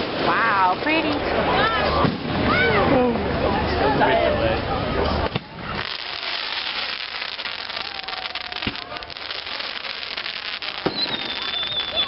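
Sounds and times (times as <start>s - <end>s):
fireworks crackling: 0.0s - 2.5s, 5.2s - 12.0s
firework bang: 5.3s - 12.0s.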